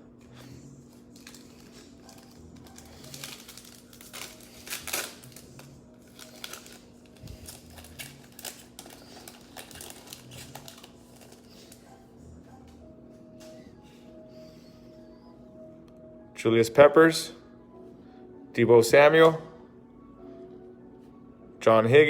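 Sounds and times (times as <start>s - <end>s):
faint steady hum: 0.0s - 22.0s
pack wrappers crinkling: 0.9s - 12.0s.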